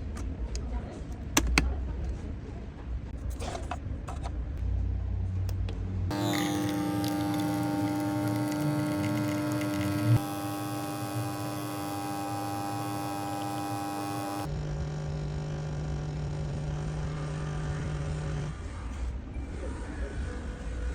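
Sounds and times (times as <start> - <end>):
coffee machine pump humming: 6.1 - 18.2.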